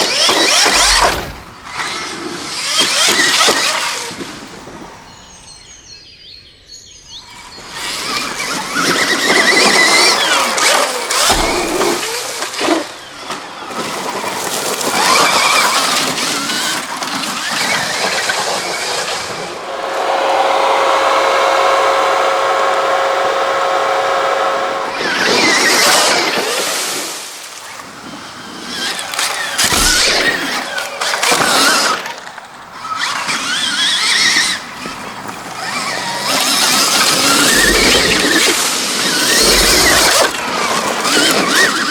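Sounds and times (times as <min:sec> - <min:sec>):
electric motor whining: 0:00.0 - 0:04.0, 0:07.6 - 0:13.1, 0:28.2 - 0:32.1, 0:32.8 - 0:41.9.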